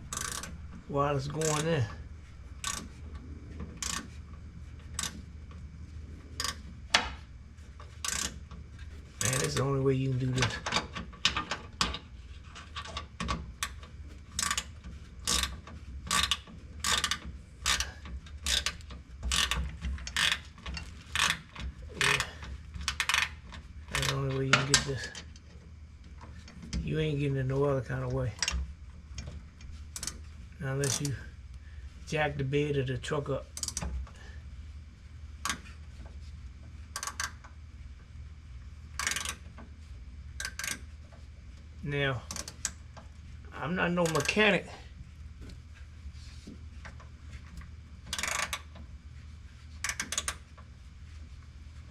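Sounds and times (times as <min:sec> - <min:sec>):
ratchet wrench clicking: 0:00.0 - 0:00.6, 0:01.4 - 0:01.9, 0:02.6 - 0:03.0, 0:03.8 - 0:04.2, 0:04.9 - 0:05.3, 0:06.4 - 0:06.7, 0:08.0 - 0:08.5, 0:09.1 - 0:09.7, 0:10.5 - 0:25.2, 0:30.0 - 0:30.2, 0:30.8 - 0:31.2, 0:33.6 - 0:33.9, 0:37.0 - 0:37.5, 0:39.0 - 0:39.5, 0:40.4 - 0:40.9, 0:42.3 - 0:42.8, 0:44.0 - 0:44.4, 0:48.1 - 0:48.8, 0:49.8 - 0:50.5
steady low hum: 0:00.0 - 0:51.9.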